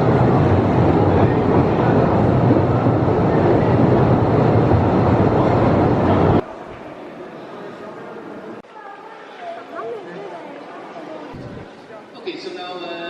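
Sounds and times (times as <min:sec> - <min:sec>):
electric train rumbling: 0:00.0 - 0:06.5.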